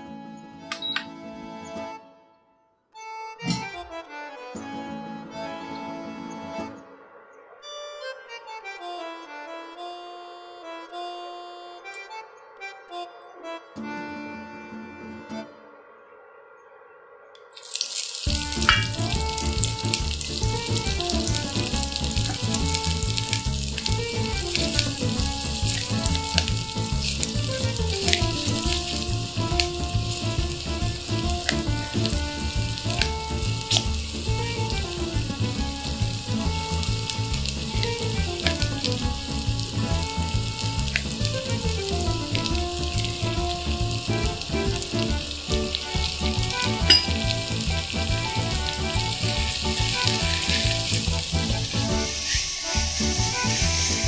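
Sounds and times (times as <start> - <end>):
background melody: 0.0 - 16.6, 17.4 - 54.0
onion sizzling in hot oil: 17.5 - 54.0.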